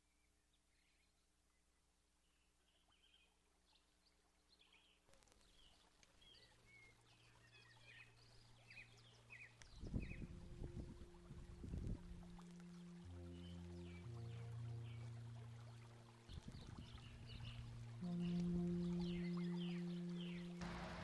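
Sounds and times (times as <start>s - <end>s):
songbirds chirping: 0.0s - 21.0s
low rumble: 10.0s - 21.0s.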